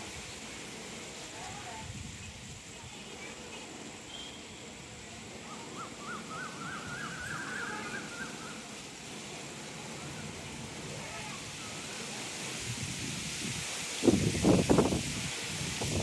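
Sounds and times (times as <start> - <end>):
outdoor background hiss: 0.0 - 16.0
bird calling in rapid notes: 5.6 - 8.7.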